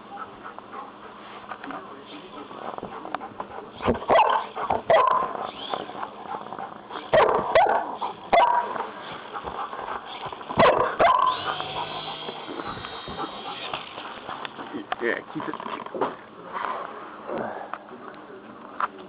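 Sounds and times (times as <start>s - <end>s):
dog barking: 4.1s - 5.4s, 7.1s - 8.8s, 10.6s - 12.3s.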